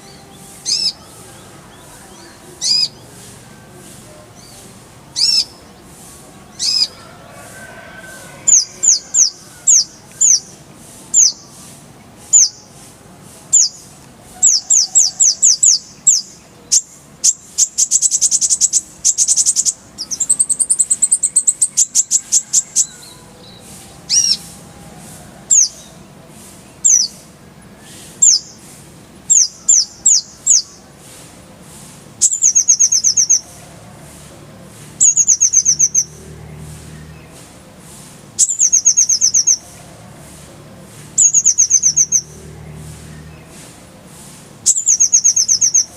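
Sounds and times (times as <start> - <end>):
sunbird chirping: 0.0 - 12.8, 13.4 - 24.6, 32.2 - 34.2, 35.0 - 40.4, 41.1 - 43.8, 44.6 - 45.9.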